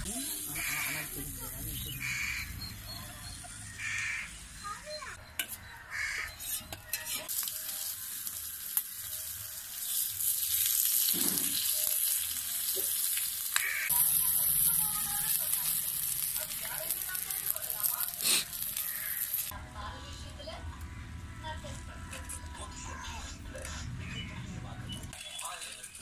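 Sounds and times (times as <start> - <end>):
fish sizzling on a hot pan: 0.1 - 2.6, 7.0 - 19.5.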